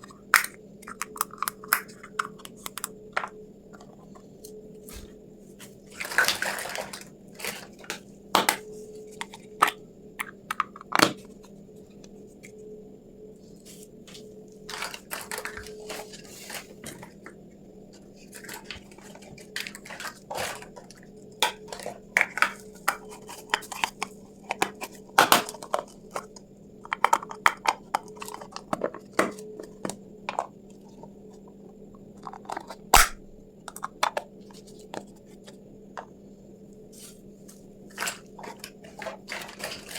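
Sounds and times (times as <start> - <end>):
faint steady hum: 0.0 - 39.9
packaging rustling: 14.6 - 17.0, 18.4 - 21.0, 37.9 - 39.9.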